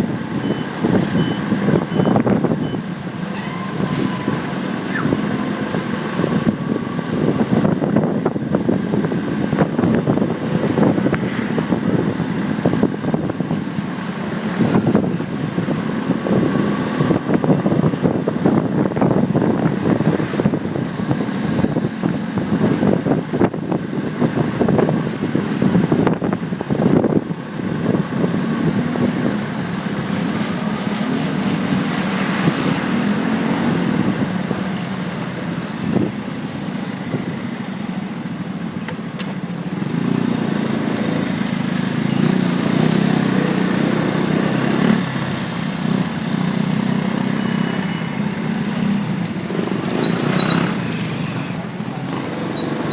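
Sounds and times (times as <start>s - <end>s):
street traffic: 0.0s - 52.9s.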